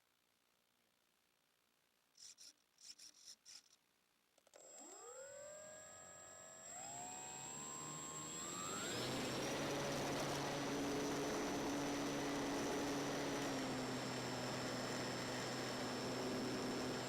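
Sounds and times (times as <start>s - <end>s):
electric motor and propeller whine: 4.6s - 17.0s.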